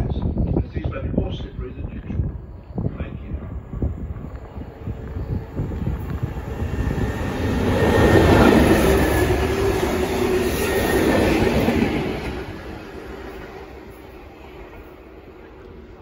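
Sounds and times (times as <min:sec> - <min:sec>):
freight train rumbling past: 0:00.1 - 0:16.0.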